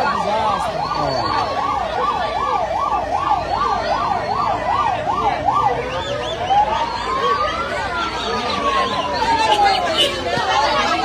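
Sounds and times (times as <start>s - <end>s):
electronic vehicle siren: 0.0s - 11.0s.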